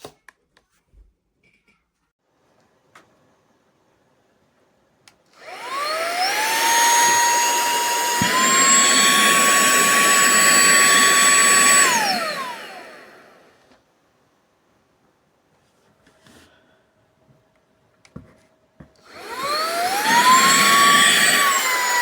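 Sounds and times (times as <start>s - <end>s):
handheld vacuum motor whine: 5.4s - 13.7s, 19.0s - 22.0s.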